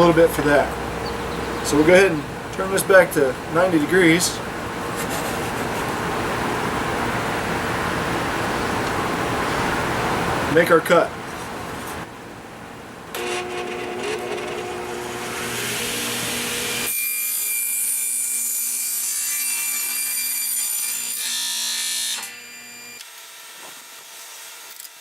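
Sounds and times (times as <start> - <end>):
table saw cutting wood: 13.2 - 25.0.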